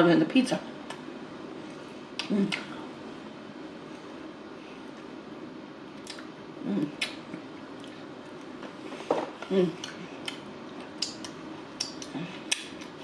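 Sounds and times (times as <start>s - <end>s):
chewing and lip smacks: 6.0s - 6.3s, 7.0s - 8.5s, 9.8s - 13.0s.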